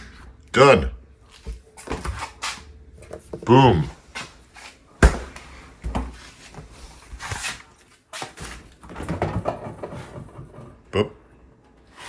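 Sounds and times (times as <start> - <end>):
refrigerator door thump: 5.0 - 6.1.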